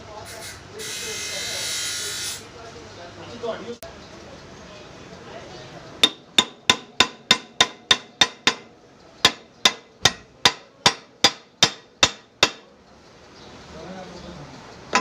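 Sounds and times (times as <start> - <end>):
hammer striking metal: 6.0 - 12.7.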